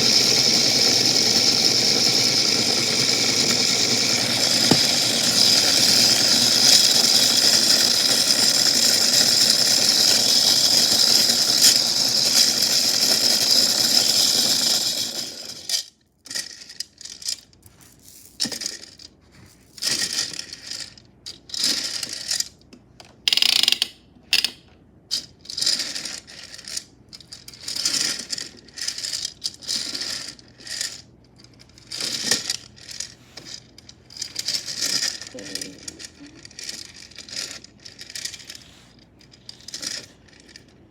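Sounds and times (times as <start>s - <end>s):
toy washing machine running: 0.0s - 17.4s, 23.3s - 24.6s, 25.2s - 33.4s, 34.1s - 38.8s.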